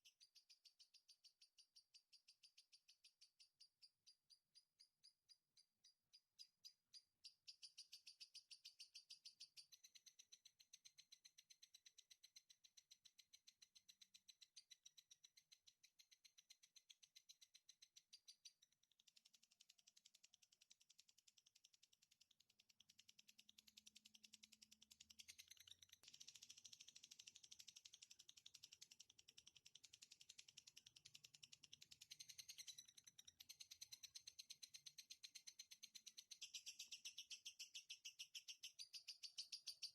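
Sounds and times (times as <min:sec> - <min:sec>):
songbird chattering trill: 0:32.0 - 0:39.9.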